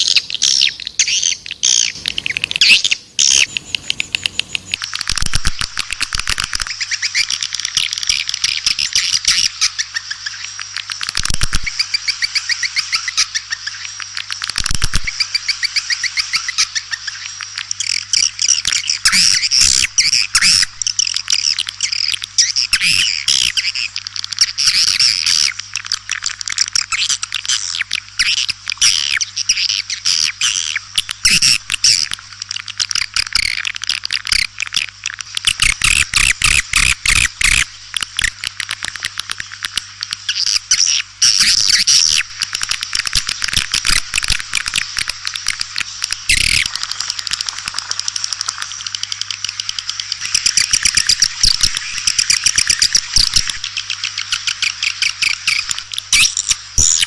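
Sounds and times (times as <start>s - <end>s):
swiftlets twittering: 40.2s - 57.0s.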